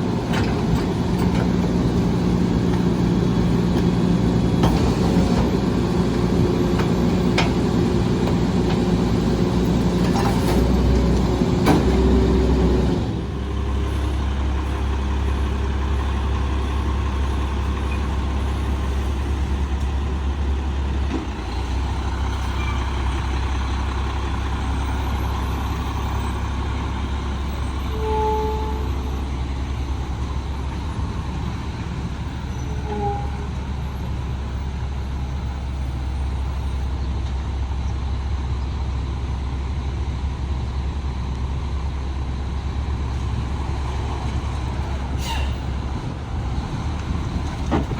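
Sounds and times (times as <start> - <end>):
truck diesel engine running: 0.0 - 47.9
short high squeaks: 45.2 - 45.6.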